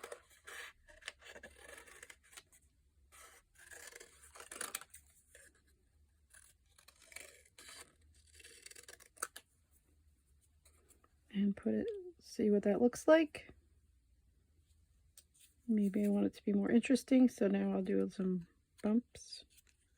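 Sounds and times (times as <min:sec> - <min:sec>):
scissors cutting paper: 0:00.0 - 0:02.5, 0:03.2 - 0:05.6, 0:06.3 - 0:09.4.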